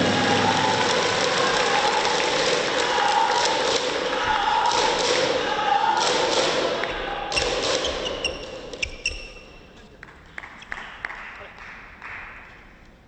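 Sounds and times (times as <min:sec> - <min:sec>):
crowd cheering: 0:00.0 - 0:08.1.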